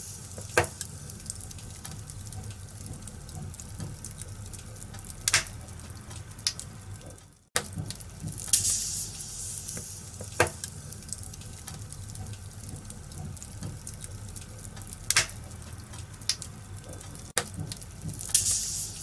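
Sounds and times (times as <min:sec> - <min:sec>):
fire hiss: 0:00.0 - 0:02.2, 0:08.4 - 0:12.0, 0:18.2 - 0:19.0
wood fire crackling: 0:00.0 - 0:19.0
sharp fire pops: 0:05.2 - 0:05.6, 0:15.0 - 0:15.6.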